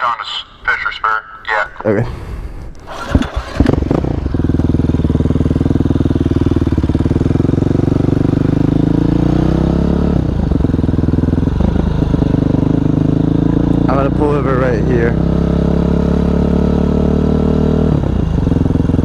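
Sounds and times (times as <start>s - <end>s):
motorcycle engine running: 2.9s - 19.0s.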